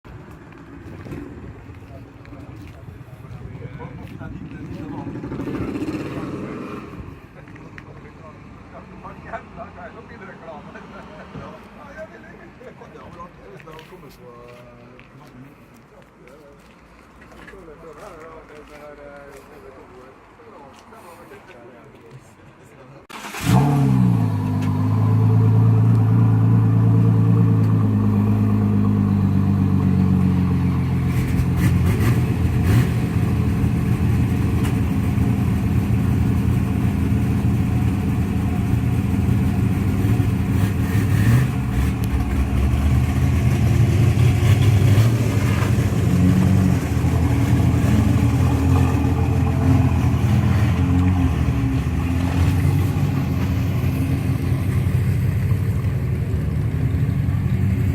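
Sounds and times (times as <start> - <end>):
car engine idling: 24.2 - 57.9.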